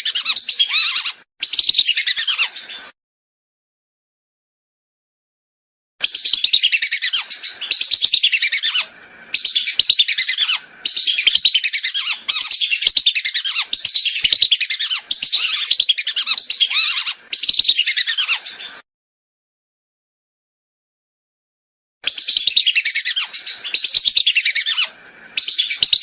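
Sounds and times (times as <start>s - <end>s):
ducks giving shrill whistled calls: 6.0s - 18.6s, 22.0s - 26.0s.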